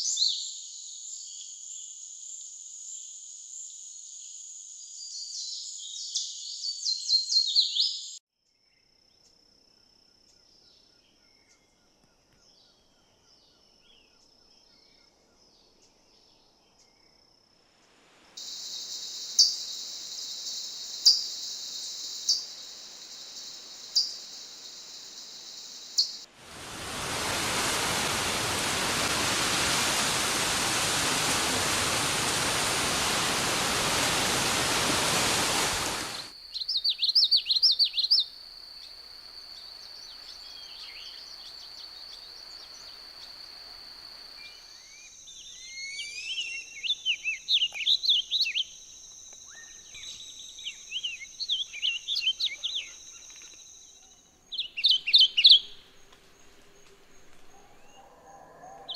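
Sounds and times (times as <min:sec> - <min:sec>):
loud rushing hiss: 0:17.9 - 0:36.3
wild birds chirping: 0:18.4 - 0:26.3, 0:34.1 - 0:38.9, 0:44.5 - 0:58.9
steady high whine: 0:18.4 - 0:27.3.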